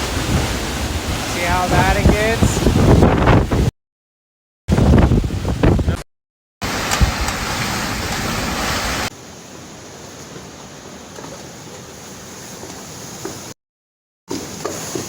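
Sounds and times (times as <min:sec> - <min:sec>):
heavy rain: 0:00.0 - 0:03.7, 0:06.6 - 0:11.6
hurricane wind: 0:00.0 - 0:03.7, 0:04.7 - 0:06.0, 0:06.6 - 0:13.5.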